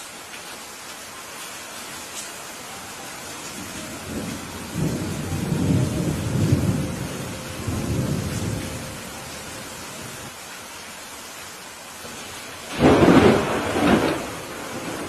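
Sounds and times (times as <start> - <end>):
heavy rain: 0.0 - 15.0
thunder rumbling: 3.5 - 10.3, 12.7 - 15.0.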